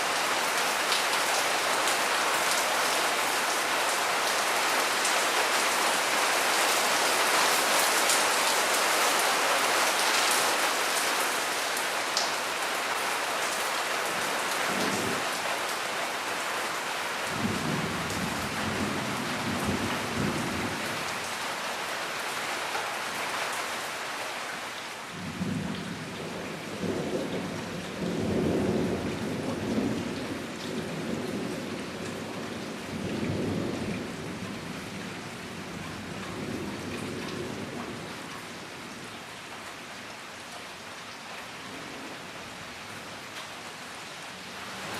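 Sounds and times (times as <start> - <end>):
heavy rain pouring: 0.0 - 44.9
low rolling thunder: 17.4 - 20.8, 25.2 - 32.3, 32.9 - 34.8.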